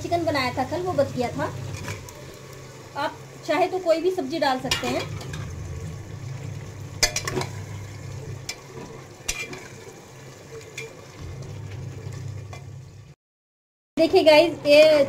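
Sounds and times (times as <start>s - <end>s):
food sizzling in a pot: 0.0s - 13.2s
steel ladle clinking and scraping: 9.3s - 9.8s.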